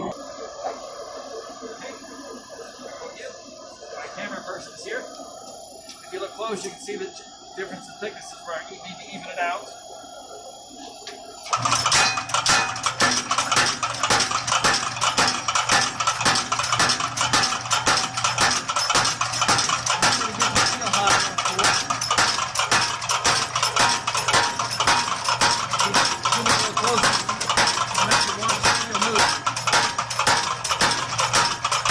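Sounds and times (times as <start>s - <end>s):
motor hum: 0.0s - 31.9s
power hammer striking hot steel: 11.5s - 31.9s.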